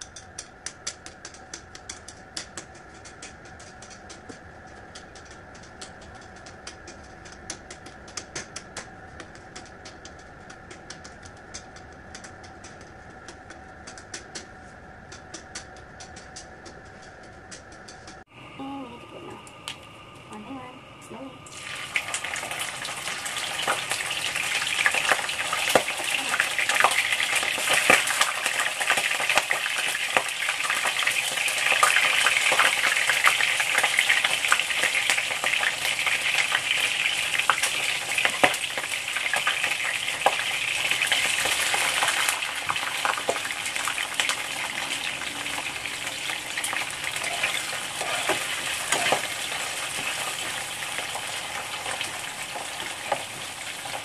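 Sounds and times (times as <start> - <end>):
shrimp sizzling in hot oil: 21.5 - 54.0.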